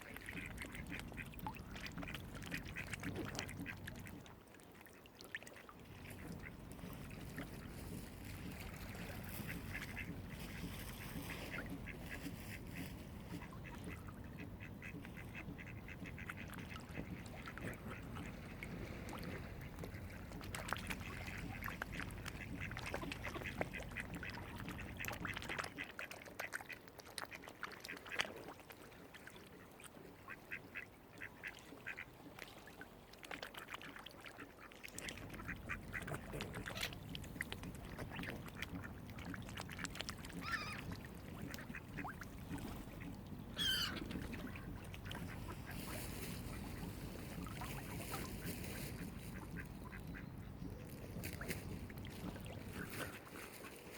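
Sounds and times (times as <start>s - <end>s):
waterfowl calling: 7.3s - 25.8s, 34.6s - 53.8s.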